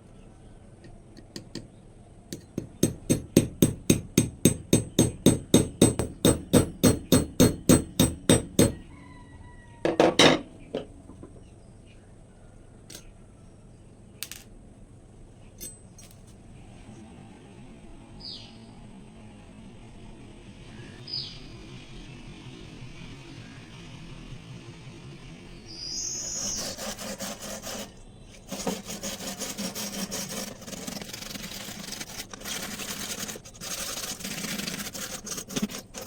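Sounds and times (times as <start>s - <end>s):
hammer striking metal: 2.4s - 8.8s
scattered knocks: 2.4s - 8.8s.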